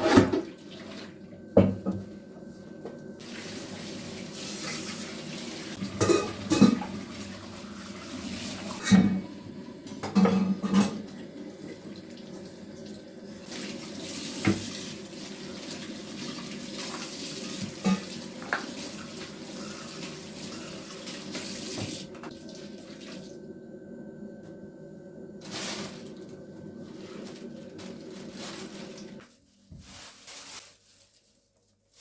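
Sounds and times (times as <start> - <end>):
tap water running into sink: 3.2 - 23.4.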